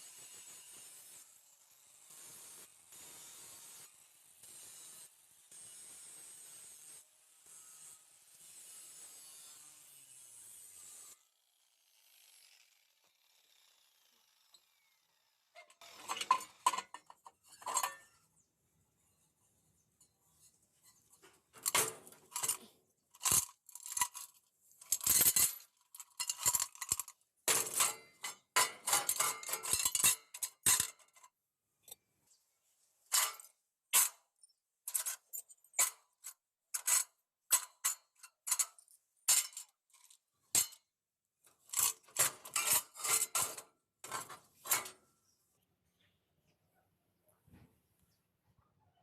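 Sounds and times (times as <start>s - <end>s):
metal tools clinking and clattering: 15.8s - 18.2s, 20.0s - 32.0s, 33.1s - 34.2s, 34.9s - 40.8s, 41.6s - 45.0s.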